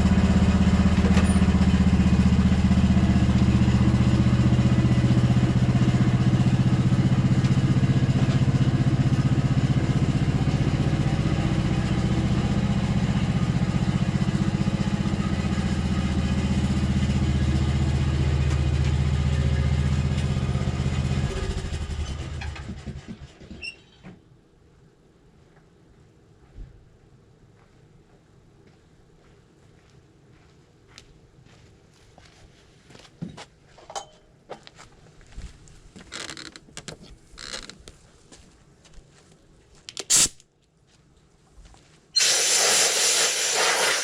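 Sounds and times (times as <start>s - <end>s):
engine running steadily: 0.0s - 23.4s.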